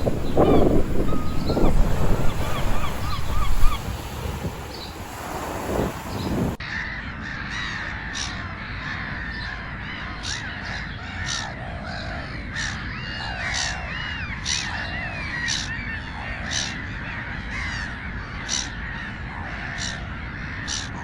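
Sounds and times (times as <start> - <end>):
birds chirping: 0.0 - 6.6
harsh bird calls: 0.0 - 21.0.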